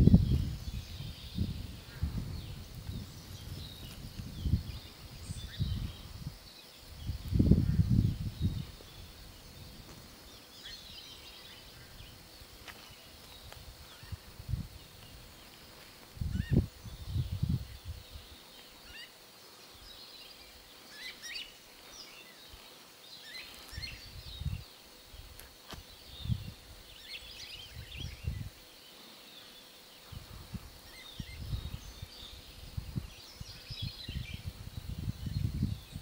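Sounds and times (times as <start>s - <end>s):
low microphone rumbles: 0.0s - 6.4s
small birds chirping: 0.0s - 36.0s.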